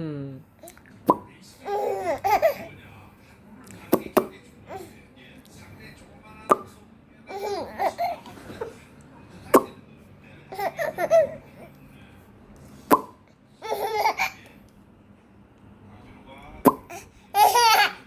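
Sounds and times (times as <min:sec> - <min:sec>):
baby giggling: 0:01.6 - 0:02.7, 0:07.3 - 0:08.3, 0:10.5 - 0:11.5, 0:13.6 - 0:14.4, 0:16.8 - 0:18.0.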